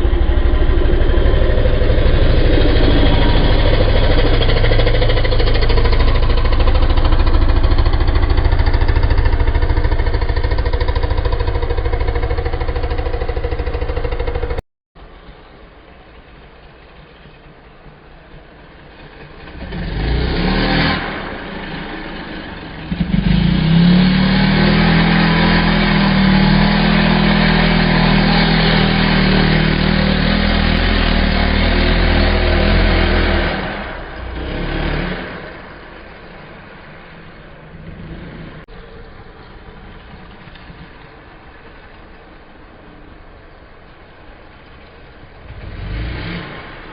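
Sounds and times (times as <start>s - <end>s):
motocross bike engine revving: 0.0s - 14.6s, 19.4s - 37.0s, 45.4s - 46.9s.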